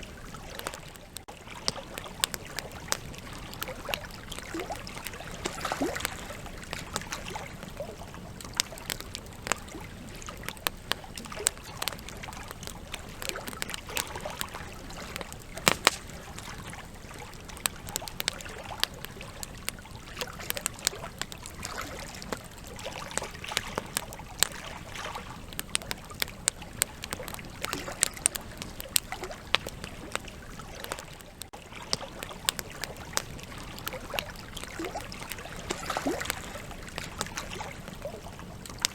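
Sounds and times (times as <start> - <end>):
campfire crackling and popping: 0.0 - 38.9
fire hiss: 15.4 - 16.7.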